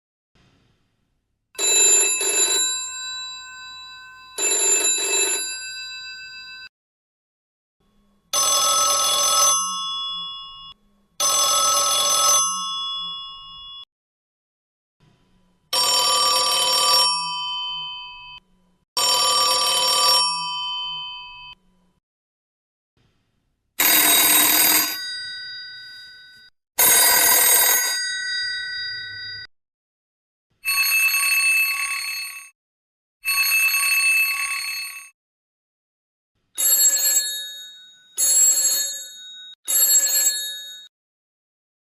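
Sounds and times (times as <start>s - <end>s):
telephone bells ringing: 1.6s - 6.7s, 8.4s - 13.9s, 15.8s - 18.4s, 19.0s - 21.6s, 23.8s - 29.5s, 30.6s - 32.6s, 33.2s - 35.2s, 36.6s - 40.9s.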